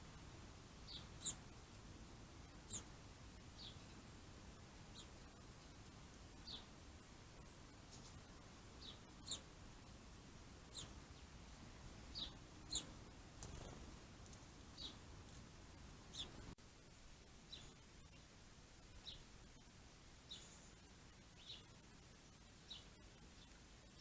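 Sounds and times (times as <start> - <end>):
faint steady hiss: 0.0 - 24.0
small bird chirping: 0.8 - 1.6, 2.4 - 4.1, 4.8 - 10.0, 10.7 - 11.4, 12.0 - 15.1, 16.0 - 16.6, 17.4 - 19.6, 20.2 - 21.8, 22.6 - 24.0.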